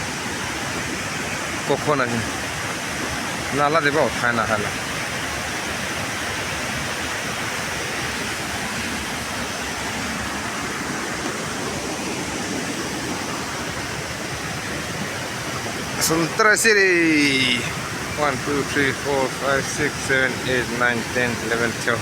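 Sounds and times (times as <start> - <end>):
steady rushing noise: 7.1 - 22.0.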